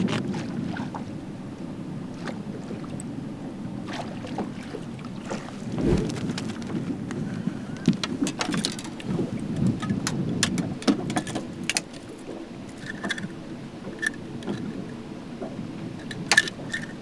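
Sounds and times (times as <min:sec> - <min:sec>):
water splashing and sloshing: 0:03.8 - 0:06.8.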